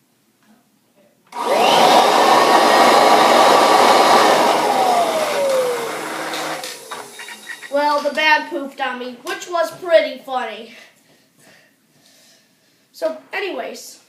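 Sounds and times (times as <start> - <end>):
vacuum cleaner motor whining: 1.3 - 8.0.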